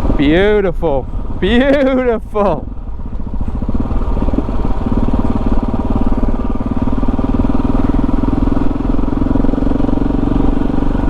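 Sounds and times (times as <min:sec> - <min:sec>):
single-cylinder motorcycle engine running: 0:00.0 - 0:11.0.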